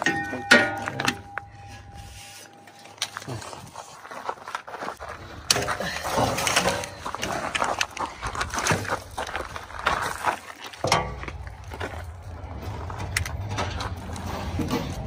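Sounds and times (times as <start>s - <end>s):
rustling and scraping of hand work: 0.0s - 15.0s
low engine hum: 11.1s - 15.0s.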